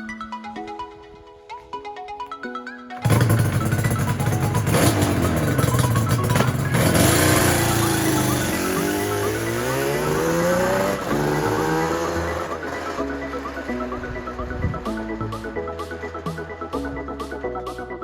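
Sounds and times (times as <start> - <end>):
two-stroke motorcycle engine revving: 3.0 - 16.3.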